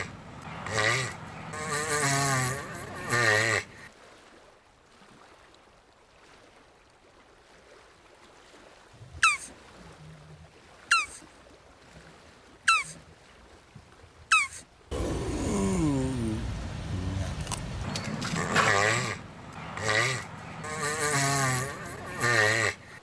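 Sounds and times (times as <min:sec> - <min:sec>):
animal calling sharp falling notes: 0:14.3 - 0:17.6
faint background hiss: 0:14.9 - 0:23.0.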